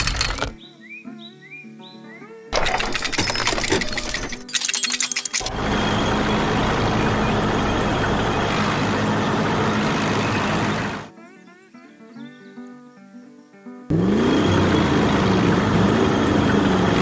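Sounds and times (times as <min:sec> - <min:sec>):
cartoon heavy vehicle engine: 0:00.0 - 0:00.6, 0:02.6 - 0:11.1, 0:13.9 - 0:17.0.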